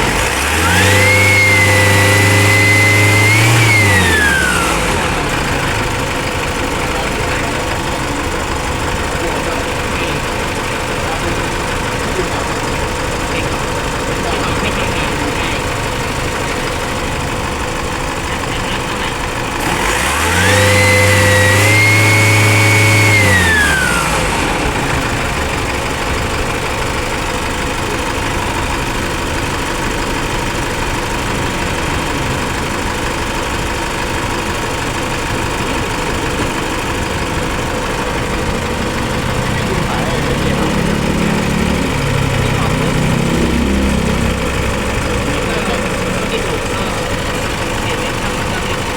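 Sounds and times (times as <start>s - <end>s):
diesel engine idling and revving: 0.0s - 48.9s.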